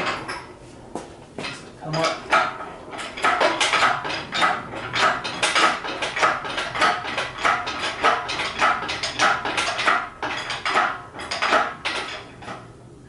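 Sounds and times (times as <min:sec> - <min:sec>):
engine crane metallic clanks: 0:00.0 - 0:13.0.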